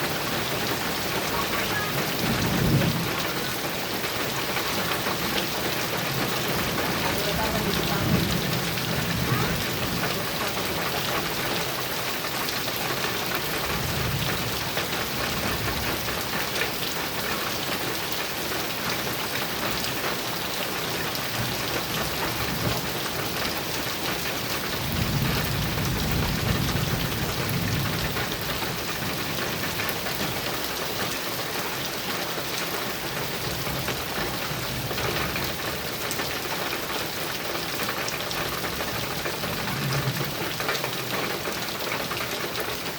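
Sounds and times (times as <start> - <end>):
heavy rain on metal roof: 0.0 - 42.9
thunder rumbling: 0.8 - 11.4, 24.4 - 30.4.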